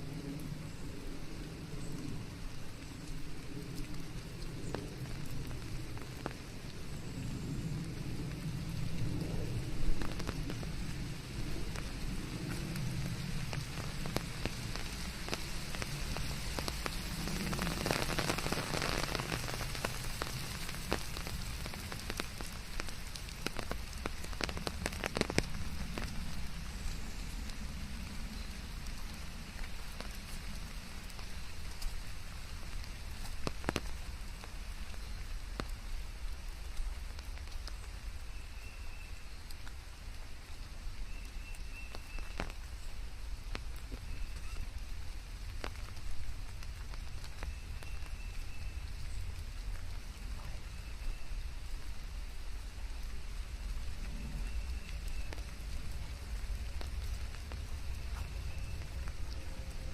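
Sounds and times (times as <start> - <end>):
rain falling on a surface: 0.0 - 59.9
low rumble: 48.6 - 59.9.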